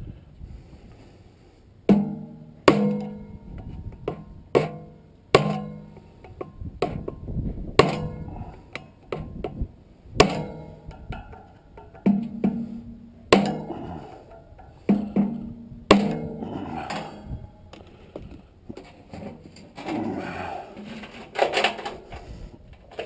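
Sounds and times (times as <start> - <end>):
hammer striking metal shaft: 4.1 - 7.2, 10.2 - 17.7.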